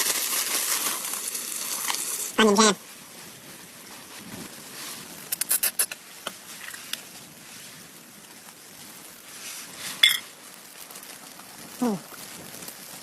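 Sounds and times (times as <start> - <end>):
sharp clicks and crunches: 0.0 - 2.3, 5.3 - 7.0
steady hiss: 0.0 - 13.0.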